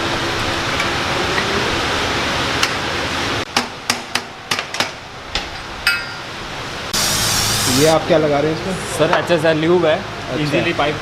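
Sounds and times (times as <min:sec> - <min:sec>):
steady rushing hiss: 0:00.1 - 0:09.6
hand tools knocking on metal: 0:03.5 - 0:06.4.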